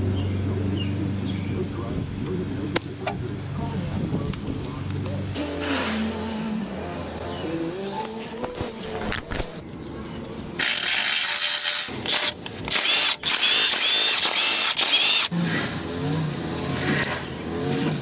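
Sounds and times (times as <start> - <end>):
power drill running in bursts: 10.6 - 15.6.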